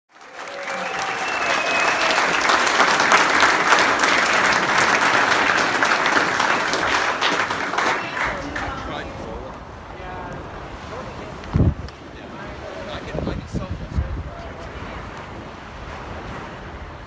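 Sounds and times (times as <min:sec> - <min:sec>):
crowd clapping: 0:00.1 - 0:09.4
faint voices: 0:00.4 - 0:15.6.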